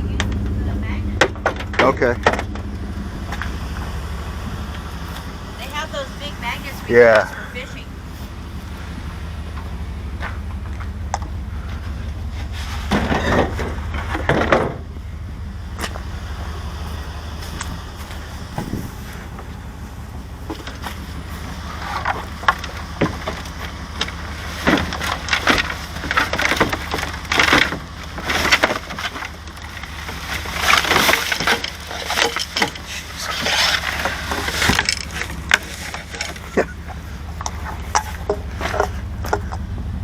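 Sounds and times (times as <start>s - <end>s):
low engine hum: 0.0s - 40.0s
objects clattering and rustling: 9.5s - 19.6s, 20.4s - 40.0s.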